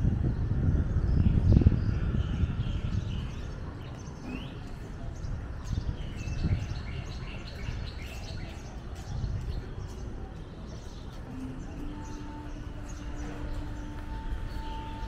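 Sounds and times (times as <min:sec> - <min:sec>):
small birds chirping: 0:01.2 - 0:15.0.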